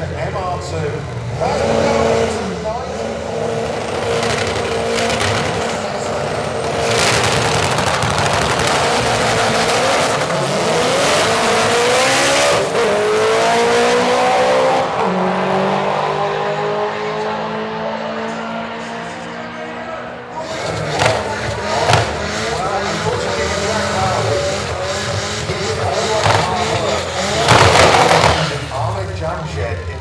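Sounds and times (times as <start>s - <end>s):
drag racing cars accelerating: 0.0s - 30.0s.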